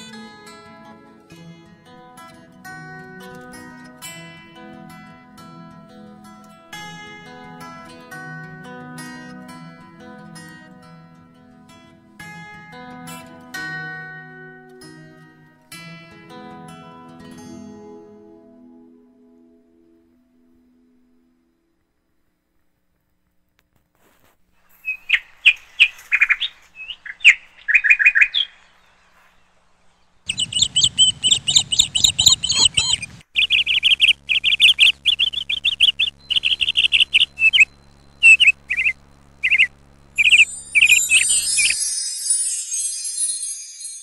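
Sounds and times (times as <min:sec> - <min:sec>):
small birds chirping: 0:24.6 - 0:41.8
low steady hum: 0:28.5 - 0:41.8
high tinkling: 0:40.3 - 0:44.0.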